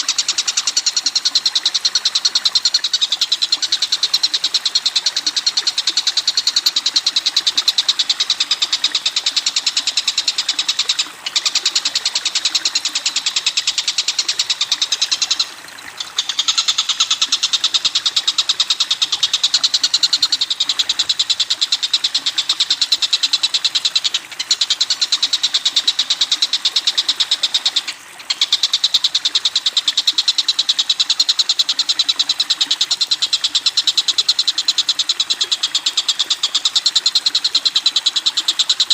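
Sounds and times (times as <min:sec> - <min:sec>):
bird rattling call: 0:09.9 - 0:21.3.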